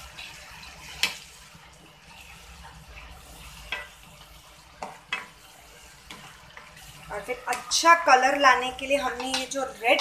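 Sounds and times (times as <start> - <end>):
masala sizzling and bubbling: 0.0 - 10.0
spatula tapping against pan: 9.1 - 10.0.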